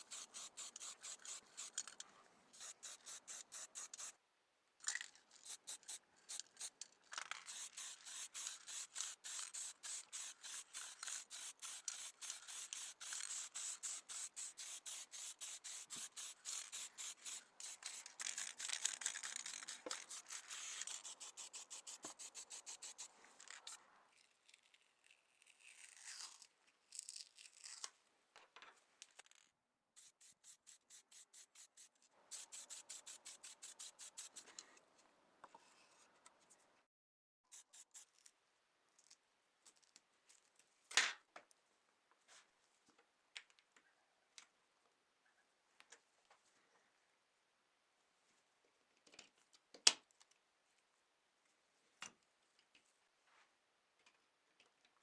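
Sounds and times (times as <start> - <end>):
rubbing strokes on model car: 0.0 - 2.0, 2.6 - 4.2, 5.4 - 23.8, 30.0 - 34.6.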